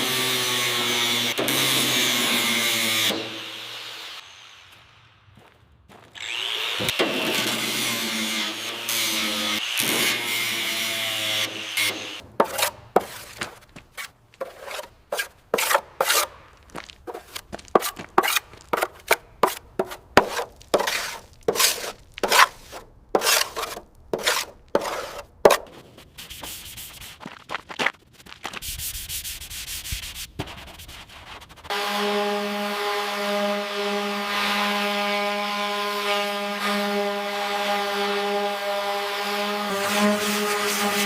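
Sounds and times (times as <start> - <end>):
hand sanding strokes: 7.6 - 16.4, 17.1 - 27.5, 28.4 - 41.0.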